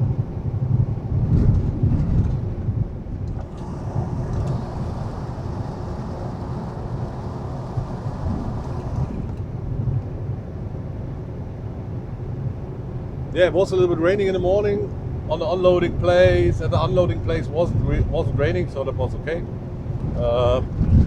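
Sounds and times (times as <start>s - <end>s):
road noise: 3.2s - 9.8s
truck diesel engine drone: 3.3s - 9.8s
hiss: 3.4s - 9.4s.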